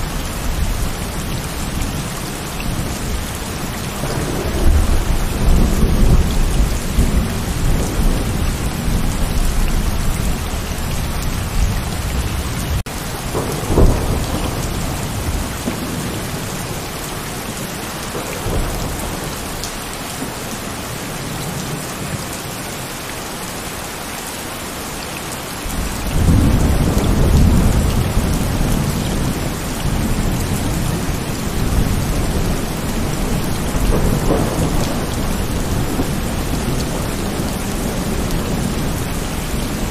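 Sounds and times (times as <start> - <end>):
rolling thunder: 0.0 - 20.4, 25.7 - 39.9
heavy rain: 0.0 - 39.9.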